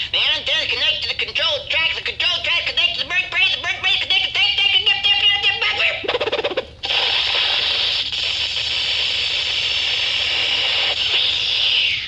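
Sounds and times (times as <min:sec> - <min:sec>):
electrical buzzing crackle: 0:06.8 - 0:11.7.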